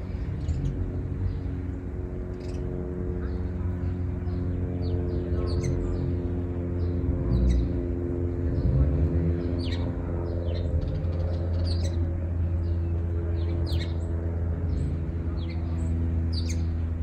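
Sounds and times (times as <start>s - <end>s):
steady low hum: 0.0s - 17.0s
small songbird chirping: 4.2s - 7.8s, 8.5s - 16.8s.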